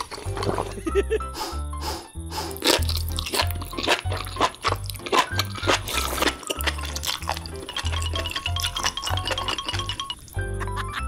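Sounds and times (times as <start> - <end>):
crunching wet chewing: 0.0 - 10.5.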